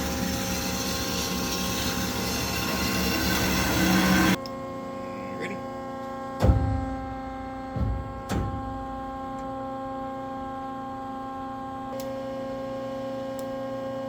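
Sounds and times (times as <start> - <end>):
bandsaw motor humming: 0.0 - 4.4
click: 13.3 - 13.5.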